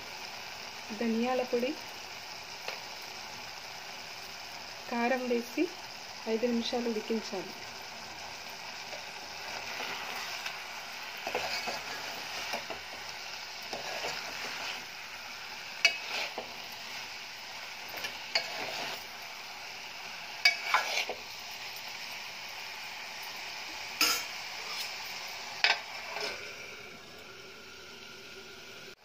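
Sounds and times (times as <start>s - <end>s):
food sizzling in a pot: 0.0s - 29.0s
metal spoon scraping a pot: 11.2s - 12.8s, 13.7s - 14.9s, 15.8s - 17.0s, 17.9s - 19.0s, 20.4s - 21.2s, 25.6s - 26.4s.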